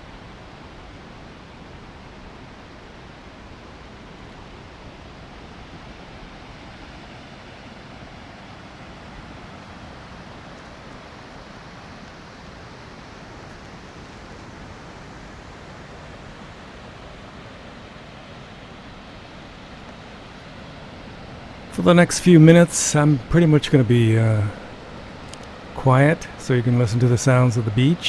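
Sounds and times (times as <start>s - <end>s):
wind: 19.4s - 28.0s
surf rushing: 20.4s - 28.0s.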